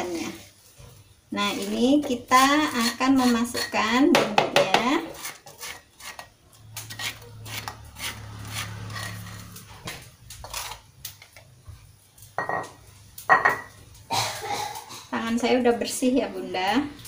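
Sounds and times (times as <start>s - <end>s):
spatula scraping mortar: 2.0s - 4.0s, 4.8s - 10.8s.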